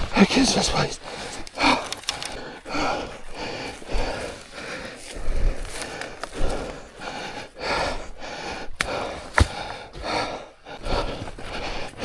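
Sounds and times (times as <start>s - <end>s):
man panting heavily: 0.0s - 12.0s
sharp clicks: 1.1s - 2.6s.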